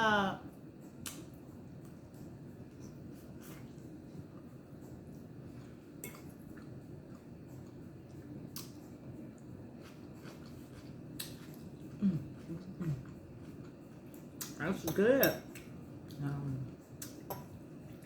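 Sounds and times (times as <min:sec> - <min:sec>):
person humming: 0:12.0 - 0:13.0.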